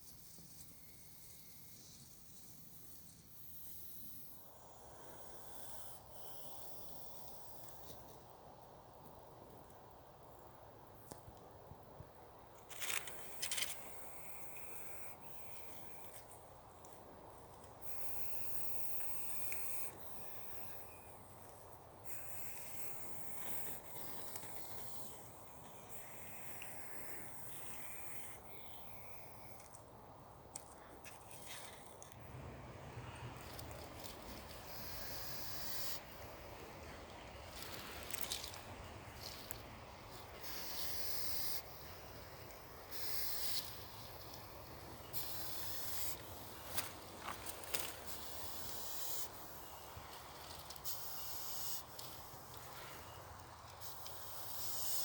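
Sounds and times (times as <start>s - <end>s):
high hiss: 17.8s - 29.7s, 32.2s - 55.0s.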